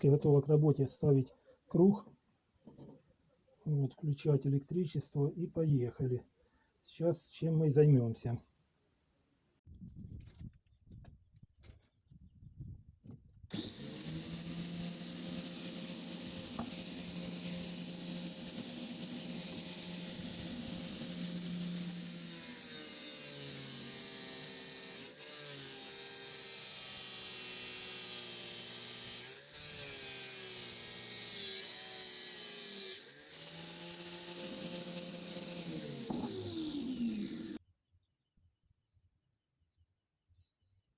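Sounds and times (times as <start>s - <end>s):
angle grinder whining: 13.5s - 37.6s.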